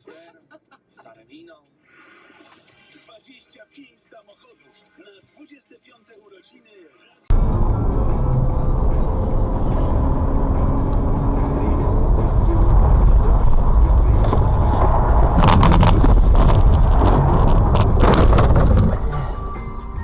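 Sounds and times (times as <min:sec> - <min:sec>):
car engine and road noise: 0:07.3 - 0:20.0
sharp knocks and clatter: 0:07.4 - 0:19.3.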